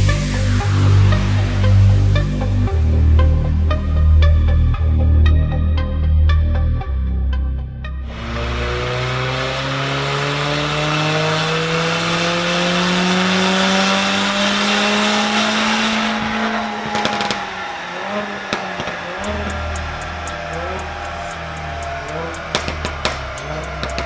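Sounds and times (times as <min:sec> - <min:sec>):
car engine revving: 0:00.0 - 0:04.6, 0:08.0 - 0:24.0
exhaust crackles and pops: 0:08.1 - 0:24.0.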